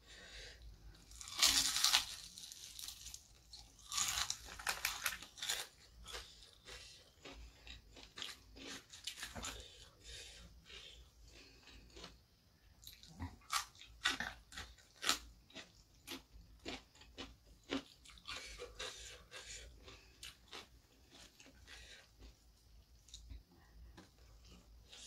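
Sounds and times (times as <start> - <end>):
crunching and chewing: 0.8 - 25.0.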